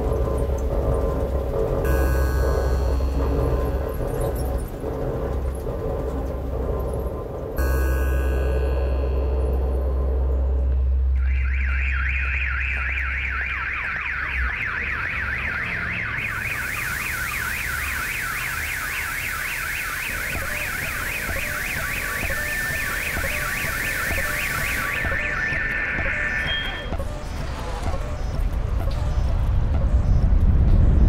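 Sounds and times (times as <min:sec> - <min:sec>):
car alarm siren warbling: 0:01.8 - 0:04.5, 0:07.6 - 0:10.4, 0:11.1 - 0:27.2.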